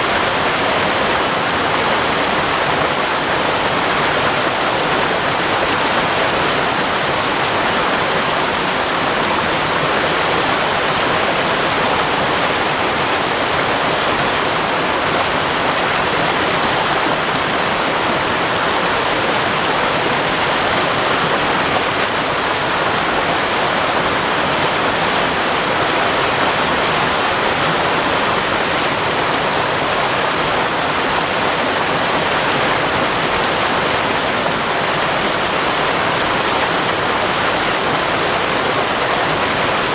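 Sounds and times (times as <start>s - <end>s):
waterfall rushing over rock: 0.0s - 39.9s.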